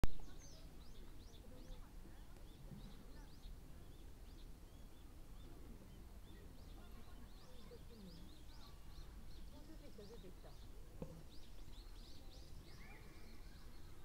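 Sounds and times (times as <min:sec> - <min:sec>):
faint bird chirps: 0:00.1 - 0:14.0
low background noise: 0:00.1 - 0:14.0.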